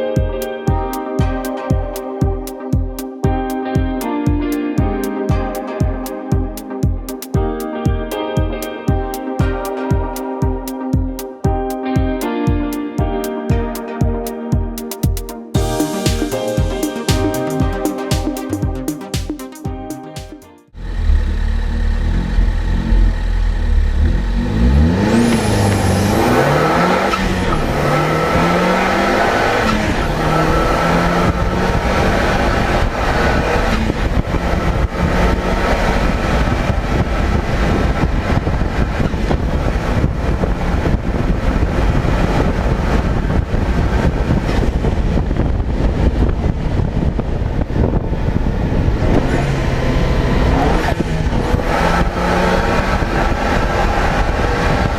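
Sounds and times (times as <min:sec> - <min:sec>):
car engine accelerating: 0:20.7 - 0:54.9
wind and road noise: 0:20.8 - 0:54.9.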